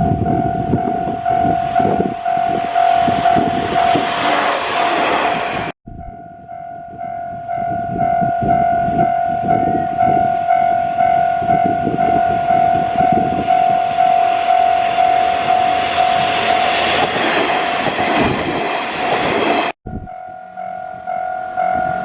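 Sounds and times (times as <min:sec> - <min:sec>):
level crossing warning bell: 0:00.0 - 0:04.3, 0:06.0 - 0:17.1, 0:19.9 - 0:22.0
train rumbling past: 0:00.0 - 0:22.0.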